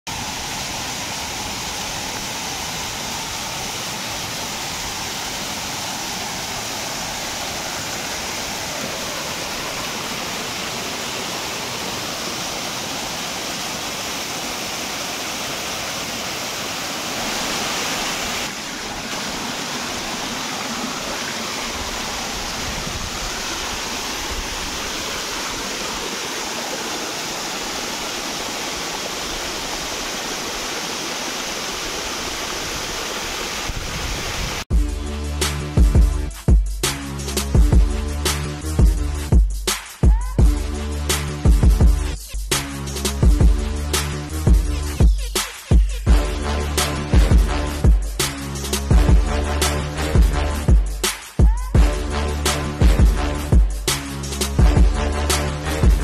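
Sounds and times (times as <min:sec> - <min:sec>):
waterfall rushing: 0:00.1 - 0:34.7.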